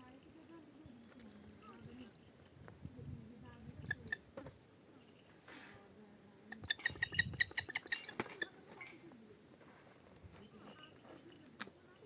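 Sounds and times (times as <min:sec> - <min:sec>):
bird chirping rapidly: 0:03.6 - 0:04.2, 0:06.5 - 0:08.5.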